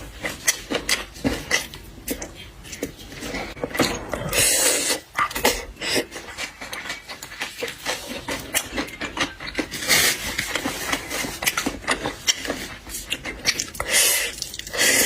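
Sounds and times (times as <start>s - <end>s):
shells cracking and chewing: 5.0s - 15.0s.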